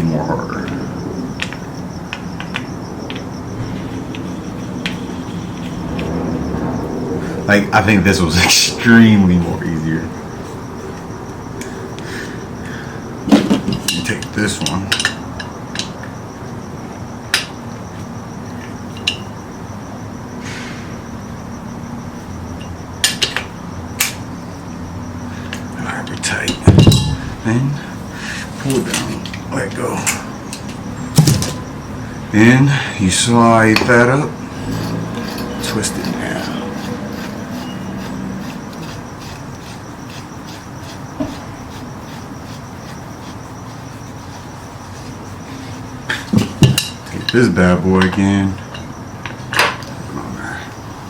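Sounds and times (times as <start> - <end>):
steady low hum: 0.0 - 48.0
cricket chirping: 0.0 - 51.0
short scraping hiss: 20.4 - 21.0.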